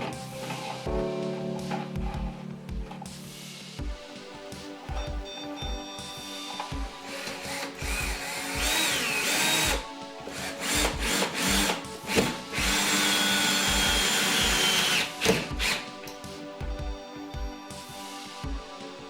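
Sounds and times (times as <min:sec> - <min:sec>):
background music with beat: 0:00.0 - 0:19.0
power drill whining: 0:06.6 - 0:15.8.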